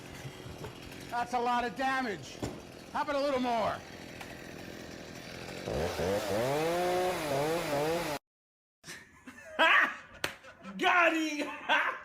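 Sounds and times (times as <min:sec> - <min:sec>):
small motor revving: 0:03.7 - 0:08.2.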